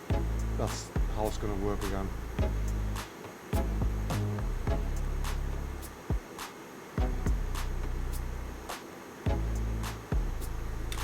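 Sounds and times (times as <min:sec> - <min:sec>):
background music with deep bass: 0:00.0 - 0:06.2, 0:07.0 - 0:08.7, 0:09.3 - 0:11.0.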